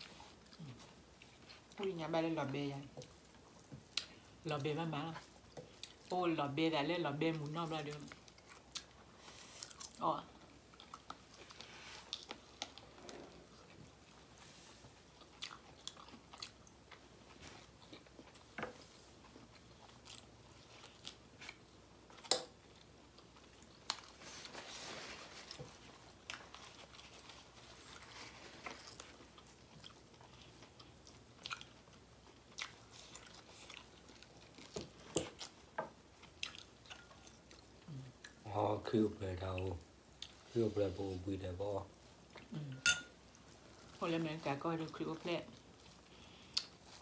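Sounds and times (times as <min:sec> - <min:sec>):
people chewing food: 0:00.0 - 0:47.0
mouth clicks and crunches: 0:45.8 - 0:47.0.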